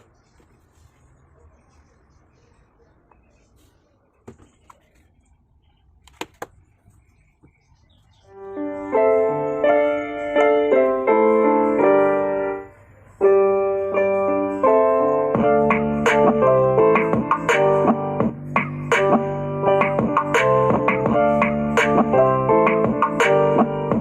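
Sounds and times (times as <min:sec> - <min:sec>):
piano music in chords: 0:08.2 - 0:24.0.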